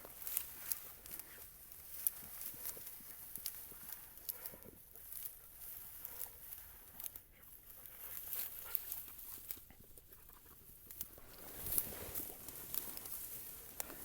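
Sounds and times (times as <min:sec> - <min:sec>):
footsteps through dry grass: 0:00.0 - 0:14.0.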